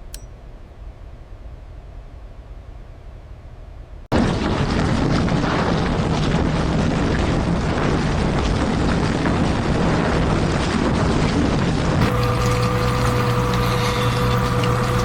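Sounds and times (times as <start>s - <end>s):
industrial machinery rumbling: 4.2s - 15.0s.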